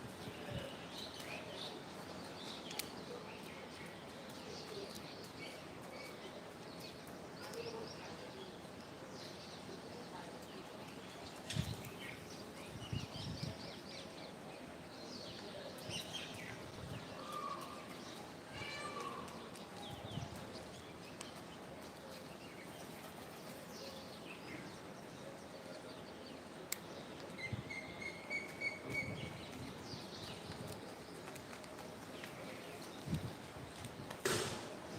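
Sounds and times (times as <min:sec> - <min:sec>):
steady background noise: 0:00.0 - 0:34.9
birds chirping: 0:00.1 - 0:34.9
brief knocks: 0:34.2 - 0:34.8.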